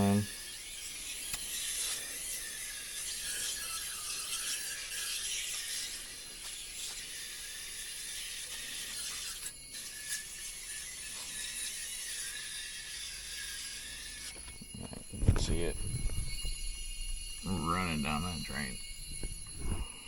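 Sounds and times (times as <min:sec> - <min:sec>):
spray hiss: 0:00.0 - 0:09.6.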